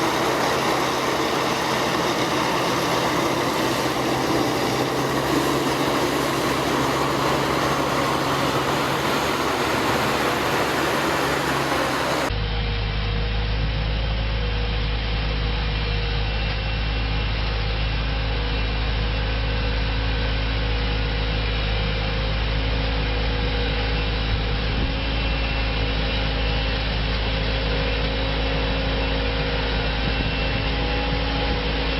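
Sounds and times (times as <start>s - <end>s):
heavy farm machinery engines: 0.0s - 12.3s, 23.2s - 31.9s
machine deep drone: 0.0s - 31.9s.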